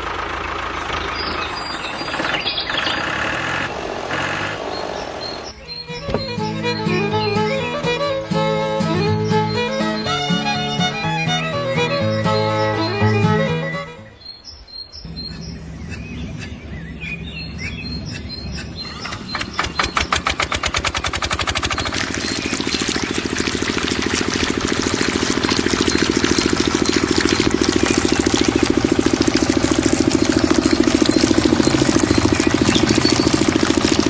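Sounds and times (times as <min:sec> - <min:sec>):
water pump engine running: 0:00.0 - 0:07.4, 0:15.1 - 0:34.0
birds chirping: 0:00.1 - 0:34.0.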